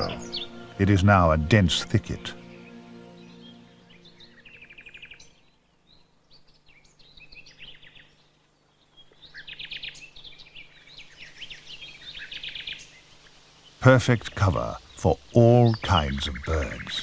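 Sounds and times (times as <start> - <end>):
nightingale singing: 0.0 - 17.0.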